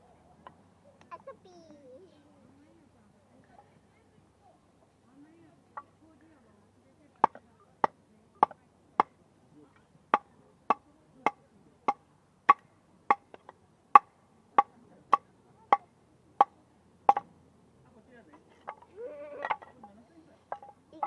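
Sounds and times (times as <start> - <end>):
hatchet chopping firewood: 7.2 - 9.1, 11.9 - 15.2, 17.1 - 17.3.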